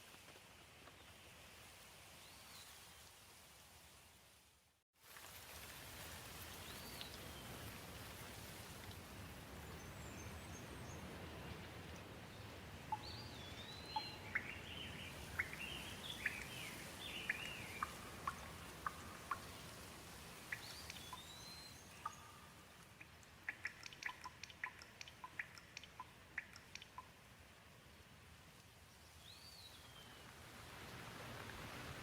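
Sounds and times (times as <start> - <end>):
gentle rain falling: 0.0 - 32.0
water drips tapping: 17.2 - 19.6, 22.0 - 27.1.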